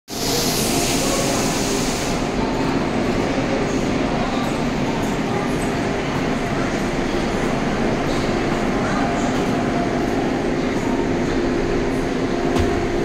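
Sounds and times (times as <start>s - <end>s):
loud high hiss: 0.1s - 2.4s
train rumble and hiss: 0.1s - 13.0s.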